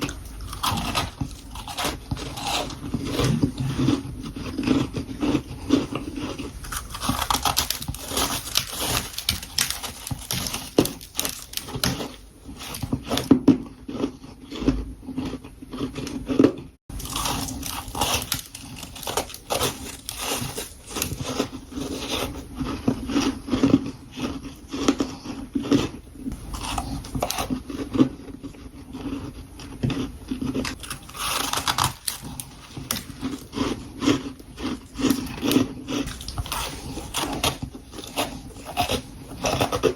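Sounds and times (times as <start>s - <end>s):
crunching bites into frost: 6.3s - 13.2s, 30.7s - 34.2s.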